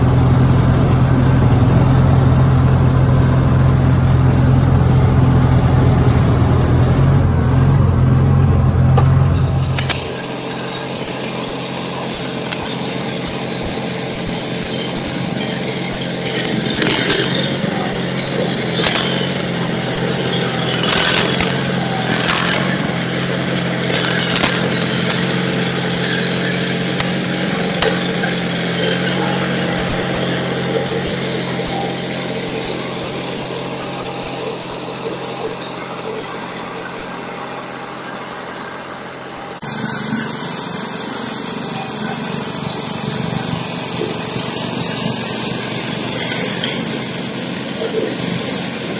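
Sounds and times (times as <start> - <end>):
garden tractor engine running: 0.0 - 10.2.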